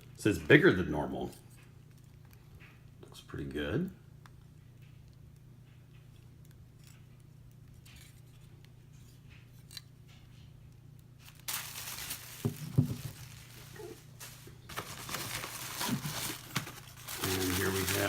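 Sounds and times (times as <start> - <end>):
packaging crinkling and tearing: 11.2 - 18.0.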